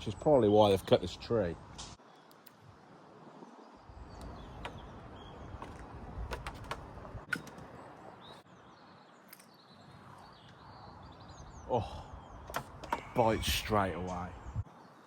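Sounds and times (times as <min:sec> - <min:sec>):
low rumble of handling or wind: 0:00.0 - 0:15.0
small birds chirping faintly: 0:00.0 - 0:15.0
sharp clicks: 0:01.8 - 0:02.6, 0:05.6 - 0:07.7.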